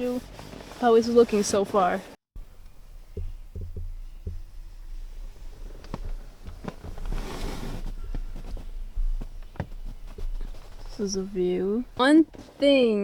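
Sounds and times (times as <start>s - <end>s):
rustle: 4.5s - 13.0s.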